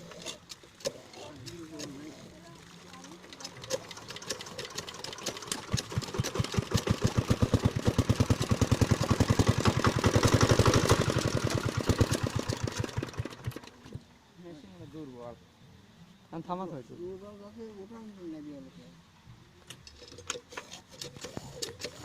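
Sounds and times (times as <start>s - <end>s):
diesel engine chuffing: 3.4s - 13.8s.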